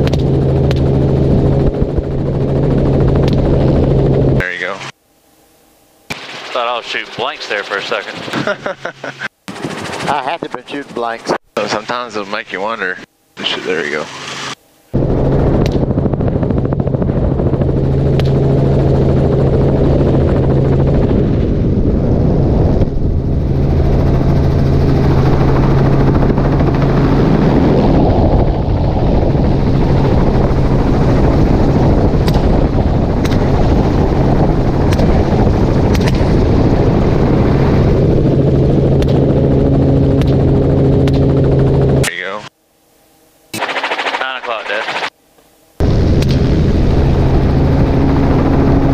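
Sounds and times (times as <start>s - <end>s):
helicopter droning in flight: 0.0s - 48.9s
rifle shots: 43.6s - 45.1s.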